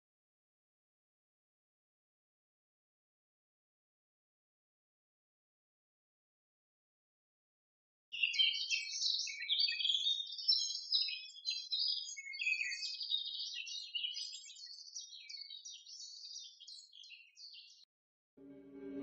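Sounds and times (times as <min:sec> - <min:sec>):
small birds chirping: 0:08.1 - 0:17.9.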